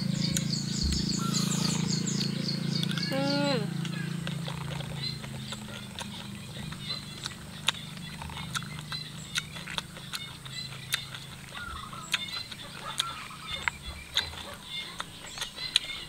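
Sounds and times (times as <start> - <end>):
mouth clicks and smacks: 0.2 - 16.0
person chewing food: 0.3 - 3.1, 3.7 - 16.0.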